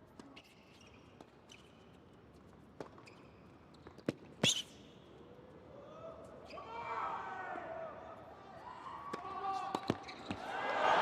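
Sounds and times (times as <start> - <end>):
faint shoe squeaks: 0.2 - 2.1, 2.9 - 5.0, 9.6 - 10.5.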